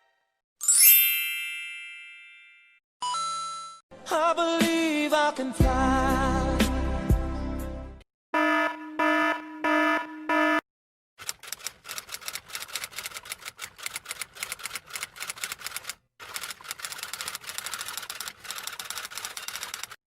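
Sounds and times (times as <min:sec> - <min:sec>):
rapid typing on keys: 0:11.2 - 0:20.0.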